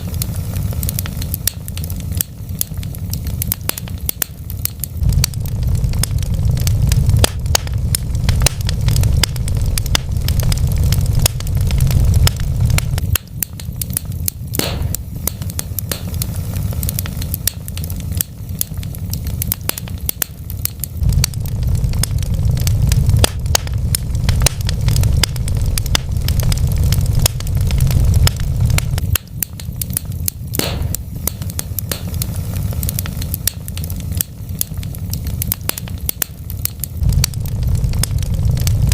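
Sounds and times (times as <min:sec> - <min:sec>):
loud fire pops: 0:00.0 - 0:38.9
wood fire crackling: 0:00.0 - 0:38.9.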